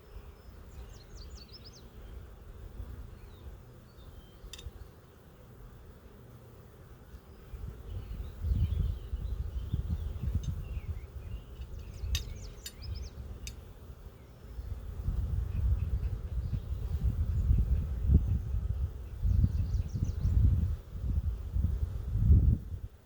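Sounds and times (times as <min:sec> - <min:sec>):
bird chirping: 0:00.0 - 0:05.0, 0:07.2 - 0:14.8, 0:15.4 - 0:20.5
bees buzzing: 0:00.1 - 0:18.0
sharp clicks: 0:11.6 - 0:13.6.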